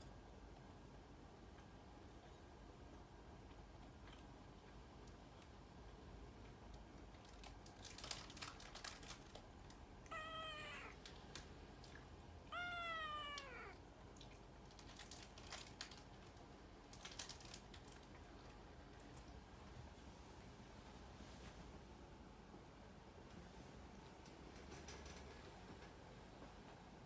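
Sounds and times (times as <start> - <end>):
cat meowing: 10.0 - 11.0, 12.4 - 13.8.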